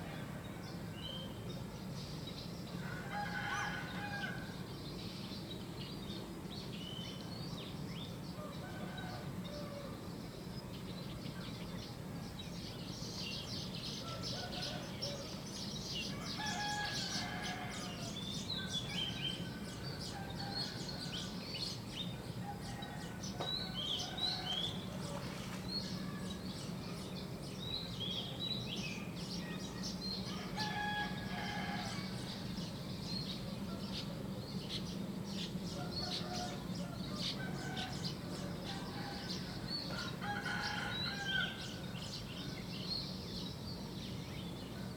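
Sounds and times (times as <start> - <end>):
songbirds chirping: 0.0 - 44.9
roosters crowing: 30.4 - 32.4, 35.8 - 41.9.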